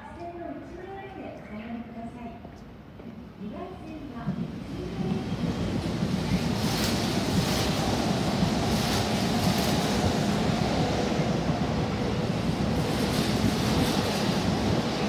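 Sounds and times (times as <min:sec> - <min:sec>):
electric train passing at speed: 0:04.3 - 0:15.0
wheels rushing on rail: 0:04.4 - 0:15.0.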